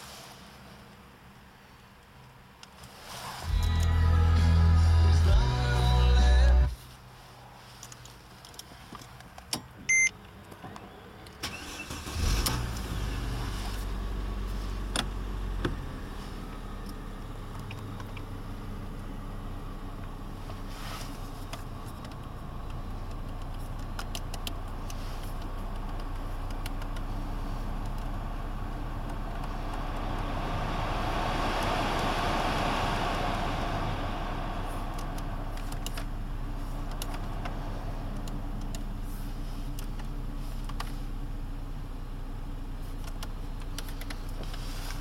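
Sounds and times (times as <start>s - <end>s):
car engine starting and idling: 0.2s - 7.1s, 7.7s - 45.0s
short beep: 9.9s - 10.1s
clicks: 36.8s - 37.6s.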